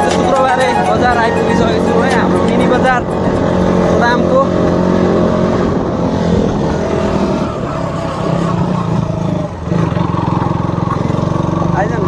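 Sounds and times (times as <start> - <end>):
motorcycle engine running: 9.0 - 12.0.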